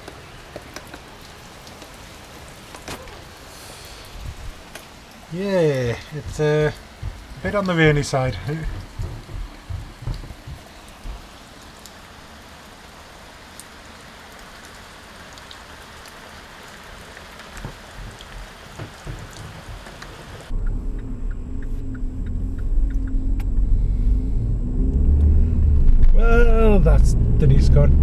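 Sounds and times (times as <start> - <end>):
raindrops tapping: 0.0 - 23.7
rain falling: 0.0 - 28.0
road noise: 0.0 - 28.0
car engine rumble inside cabin: 6.2 - 11.2, 20.4 - 28.0.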